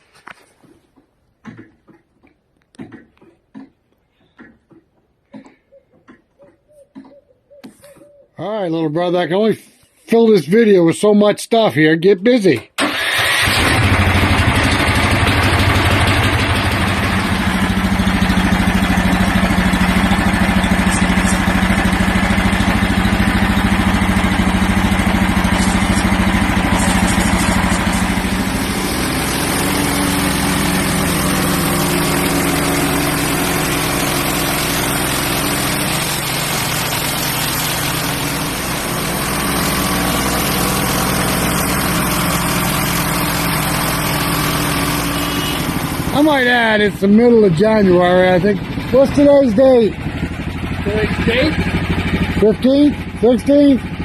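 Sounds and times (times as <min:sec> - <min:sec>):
small gasoline engine running: 0:12.8 - 0:54.0.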